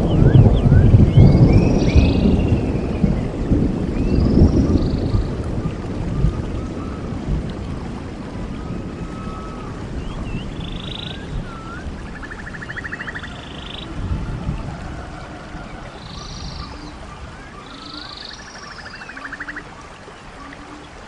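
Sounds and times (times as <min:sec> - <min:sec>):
bird chirps: 0:09.2 - 0:13.9, 0:16.0 - 0:17.0, 0:17.6 - 0:19.6.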